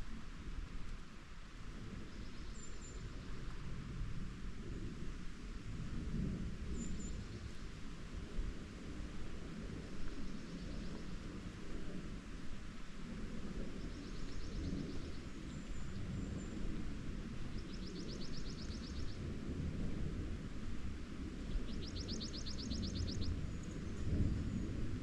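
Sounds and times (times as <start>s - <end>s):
songbird trilling: 21.5s - 23.3s.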